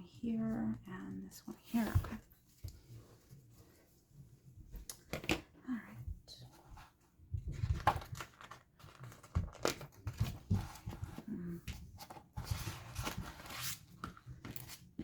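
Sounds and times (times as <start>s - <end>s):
rustling of loose pieces: 7.5s - 11.2s.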